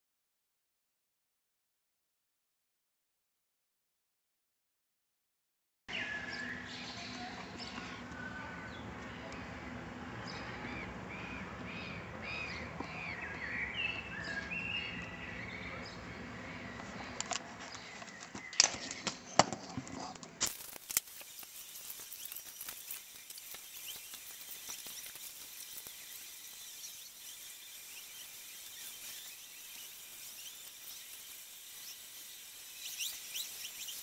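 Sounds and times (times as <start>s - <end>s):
steady outdoor hiss: 5.9s - 19.4s, 20.3s - 34.0s
songbirds chirping and singing: 5.9s - 19.6s
faint crackling and ticking: 20.4s - 34.0s.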